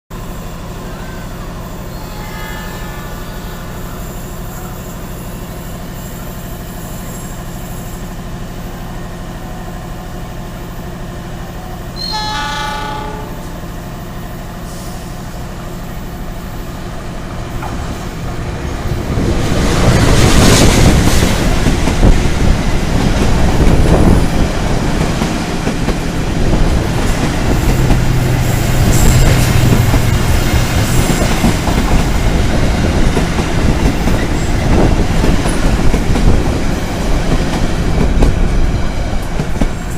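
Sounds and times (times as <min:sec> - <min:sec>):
diesel train horn: 0:00.8 - 0:04.9, 0:11.6 - 0:13.8
train wheels clattering past: 0:19.5 - 0:39.9.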